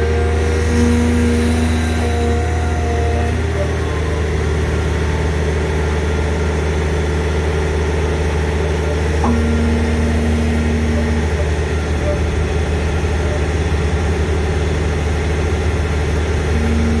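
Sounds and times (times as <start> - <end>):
diesel excavator engine running: 0.0 - 17.0.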